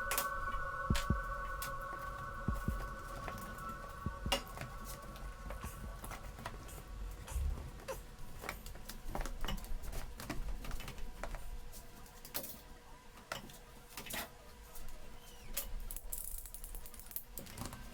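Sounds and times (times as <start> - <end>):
faint low hum: 0.0 - 13.3.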